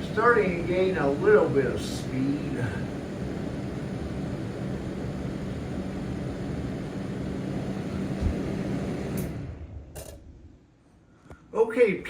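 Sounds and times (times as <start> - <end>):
exhaust fan running: 0.0 - 10.5
click: 9.1 - 9.4.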